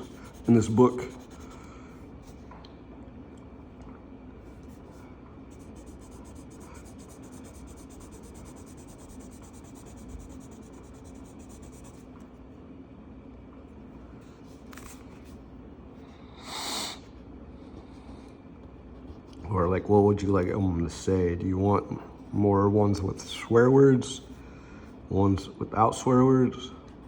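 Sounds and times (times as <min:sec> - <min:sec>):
marker scrape: 0:00.0 - 0:01.5, 0:05.6 - 0:12.0
marker colouring on paper: 0:00.0 - 0:01.6, 0:05.5 - 0:12.1.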